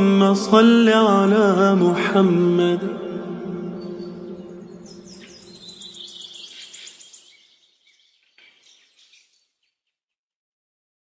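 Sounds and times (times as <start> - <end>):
reverberant voice: 0.0 - 6.0
bird trilling: 3.6 - 9.7.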